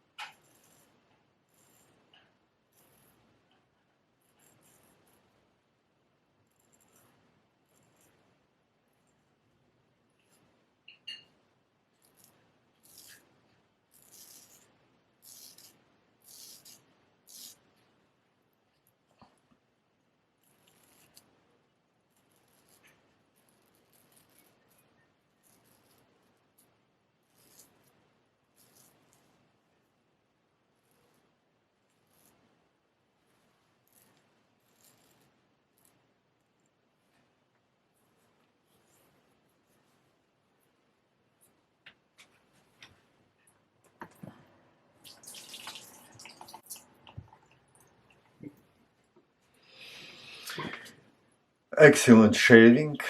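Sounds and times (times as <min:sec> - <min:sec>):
razor scraping stubble: 0:00.2 - 0:03.3, 0:04.2 - 0:05.4, 0:06.4 - 0:09.0, 0:11.9 - 0:17.7, 0:20.4 - 0:21.3, 0:22.1 - 0:29.4, 0:30.8 - 0:32.5, 0:33.8 - 0:36.1
water running from tap: 0:45.0 - 0:47.6.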